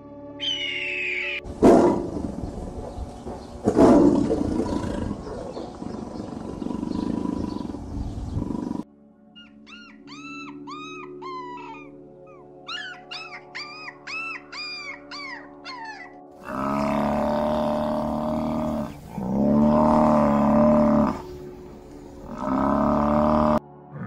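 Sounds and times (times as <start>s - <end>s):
tiger growling: 1.5s - 8.8s, 16.4s - 24.0s
puppies yelping: 9.4s - 16.9s.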